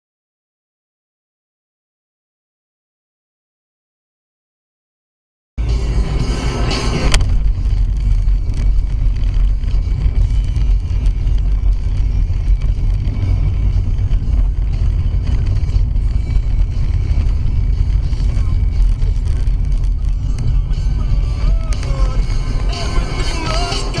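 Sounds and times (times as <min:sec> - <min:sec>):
road and wind noise: 0:05.6 - 0:24.0.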